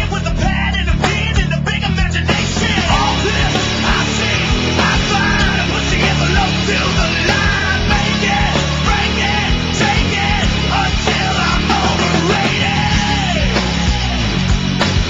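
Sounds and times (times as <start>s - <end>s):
distorted punk metal music: 0.0s - 15.0s.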